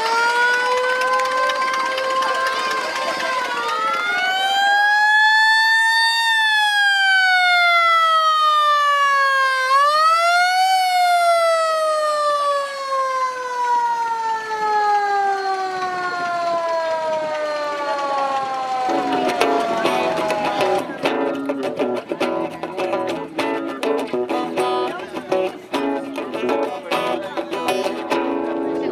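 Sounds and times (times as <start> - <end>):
siren wailing: 0.0 - 21.2.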